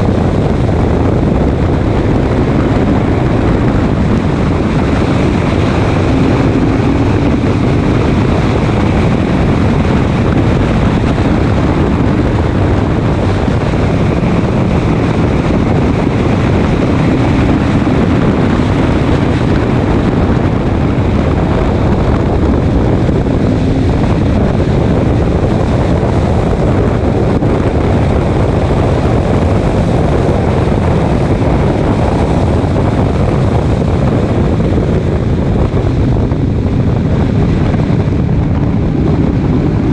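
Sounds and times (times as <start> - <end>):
race car engine: 0.0 - 39.9
rushing wind noise: 0.0 - 39.9.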